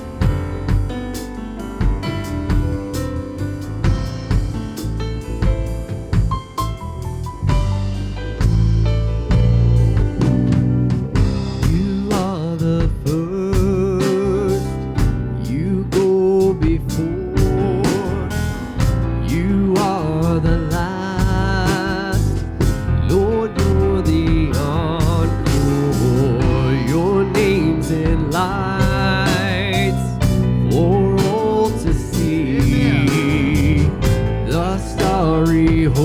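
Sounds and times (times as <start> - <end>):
worship band playing country gospel: 7.4 - 36.0.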